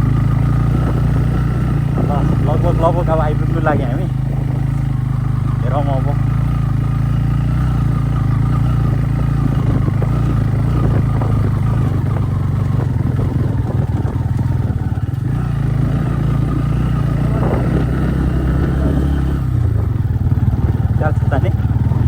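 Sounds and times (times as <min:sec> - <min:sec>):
motorcycle engine running: 0:00.0 - 0:22.0
rattle over rough track: 0:00.0 - 0:22.0.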